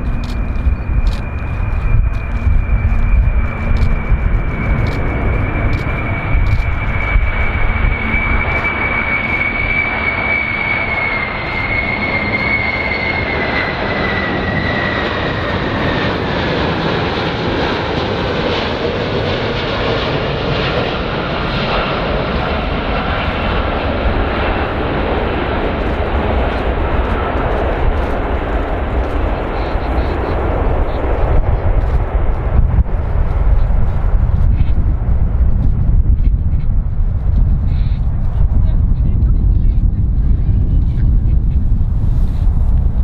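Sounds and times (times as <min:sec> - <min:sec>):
high engine whine dropping in pitch: 0:00.0 - 0:18.0
airplane engines rumbling: 0:00.0 - 0:43.0.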